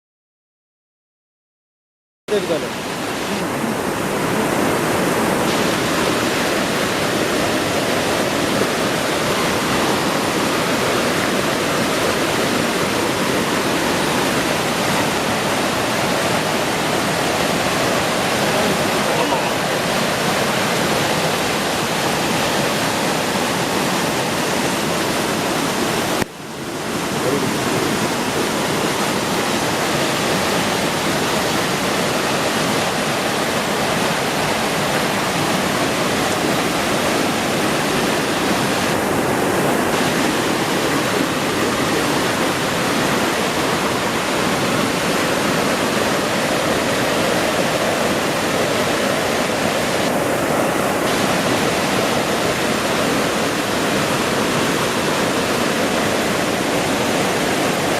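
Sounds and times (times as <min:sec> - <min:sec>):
waterfall pouring heavily: 0:02.3 - 0:57.9.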